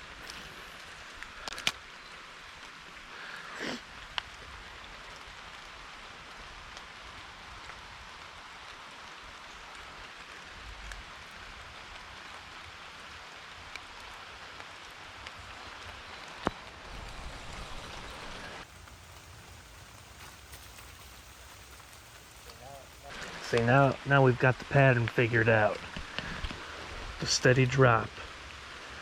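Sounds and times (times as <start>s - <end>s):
steady rain falling: 0.0s - 29.0s
sharp clicks: 1.4s - 1.8s.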